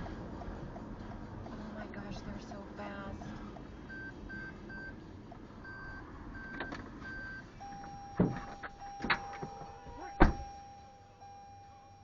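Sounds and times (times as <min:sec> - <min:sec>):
car warning chime beeping: 0:02.8 - 0:12.0.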